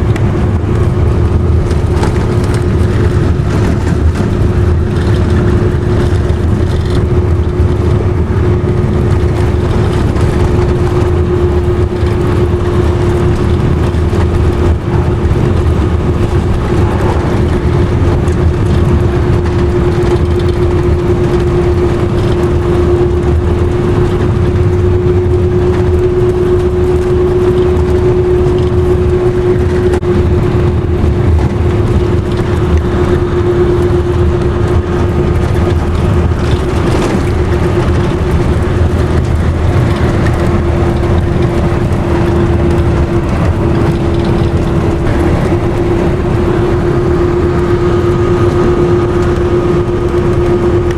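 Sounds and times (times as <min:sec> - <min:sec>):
vehicle road and engine noise: 0:00.0 - 0:50.9.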